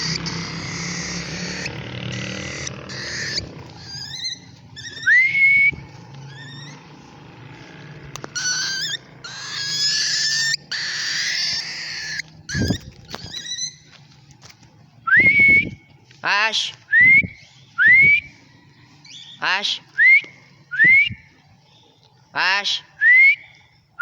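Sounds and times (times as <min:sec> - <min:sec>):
cockatiel chirping and calling: 0:00.0 - 0:06.8, 0:08.2 - 0:13.9
cockatiel rising whistle: 0:00.0 - 0:06.8, 0:08.4 - 0:13.8.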